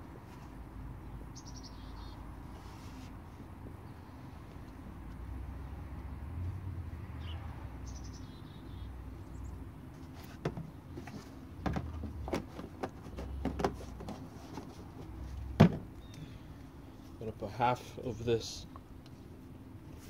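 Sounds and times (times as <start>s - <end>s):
plastic bottles clicking and knocking: 11.6s - 14.3s.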